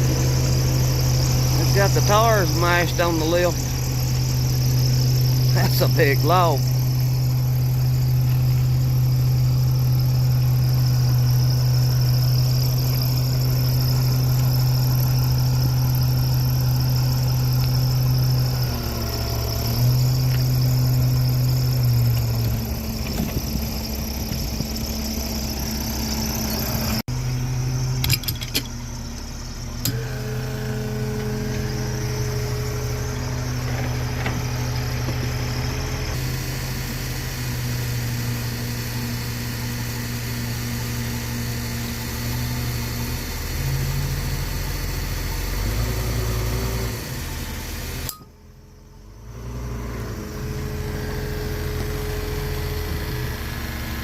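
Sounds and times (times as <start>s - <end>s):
lift engine running: 0.0s - 38.3s.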